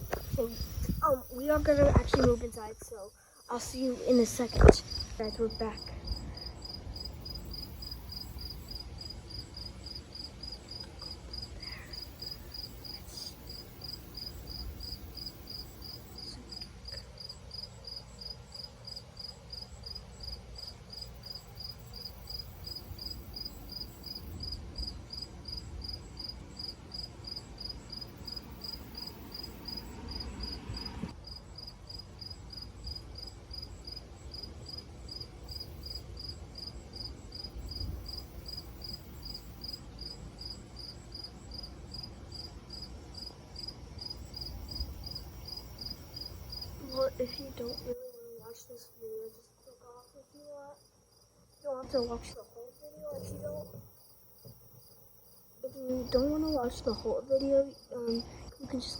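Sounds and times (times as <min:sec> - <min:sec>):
low background rumble: 0:00.0 - 0:20.4
crickets chirping: 0:00.0 - 0:58.9.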